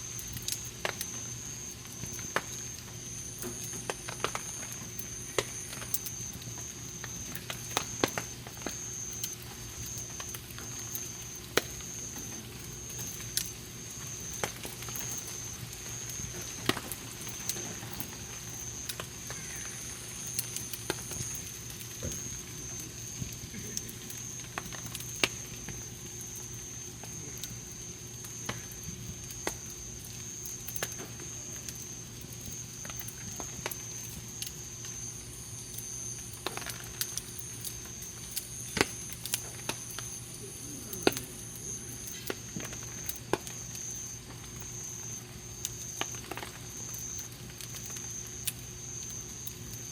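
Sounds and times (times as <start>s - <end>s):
campfire crackling: 0.0s - 49.9s
sharp pops and snaps of fire: 0.0s - 49.9s.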